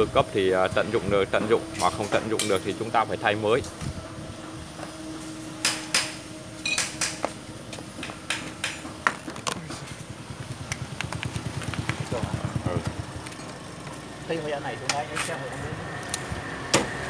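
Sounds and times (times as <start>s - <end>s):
fast pulsing engine-like sound: 0.0s - 4.4s, 9.8s - 17.0s.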